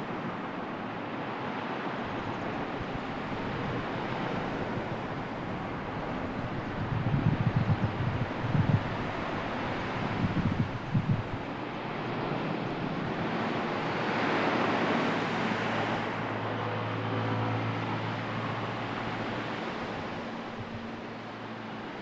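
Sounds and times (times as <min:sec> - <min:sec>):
sea waves washing in: 0:00.0 - 0:22.0
wind on microphone: 0:02.0 - 0:16.4.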